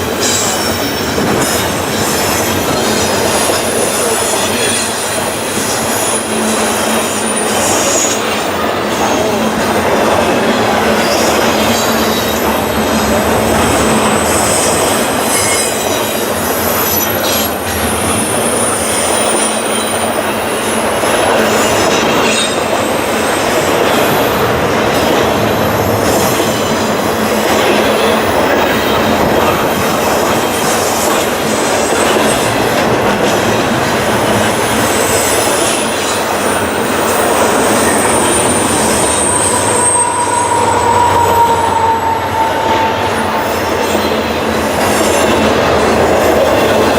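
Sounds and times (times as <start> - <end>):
freight train wheels rumbling: 0.0 - 46.9
high thin wheel squeal: 14.0 - 20.2, 34.9 - 45.2.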